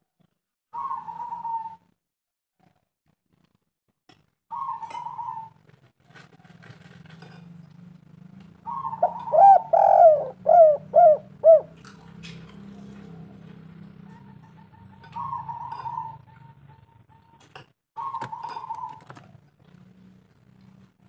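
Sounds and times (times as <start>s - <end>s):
dove cooing: 0.8s - 1.8s, 4.5s - 5.6s, 8.6s - 11.8s, 12.7s - 17.3s, 18.0s - 19.4s.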